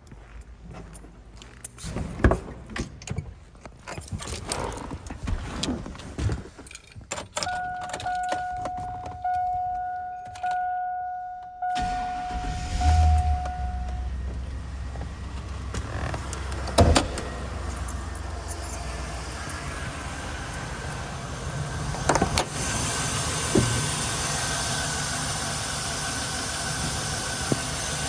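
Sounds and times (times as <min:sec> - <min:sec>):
keys jangling and clicking: 0:06.6 - 0:11.5, 0:16.3 - 0:18.9
car ignition chime: 0:07.4 - 0:18.8
truck engine cranking and starting: 0:11.6 - 0:28.0.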